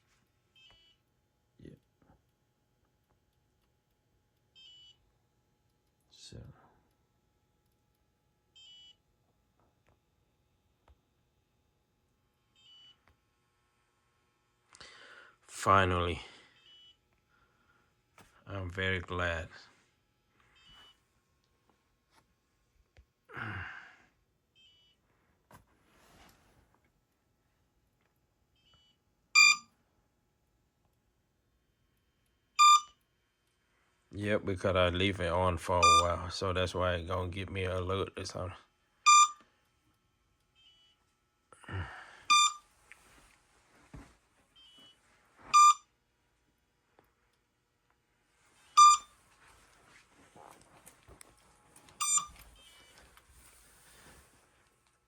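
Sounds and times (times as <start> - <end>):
person sighing: 23.3 - 24.1, 41.6 - 42.3
faint short electronic beeps: 28.6 - 29.7, 32.6 - 33.0, 35.8 - 36.2, 39.1 - 39.4, 42.3 - 42.6, 44.6 - 45.9, 48.7 - 49.1, 52.0 - 52.9.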